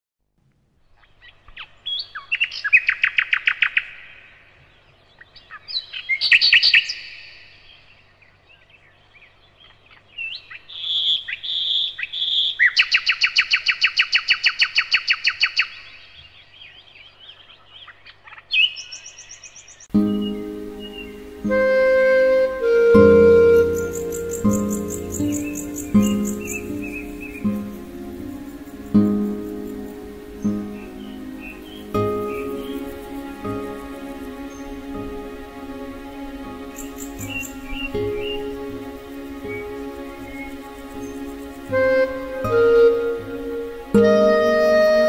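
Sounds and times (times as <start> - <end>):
songbird trills: 0.9 - 45.0
whistled bird notes: 18.6 - 45.0.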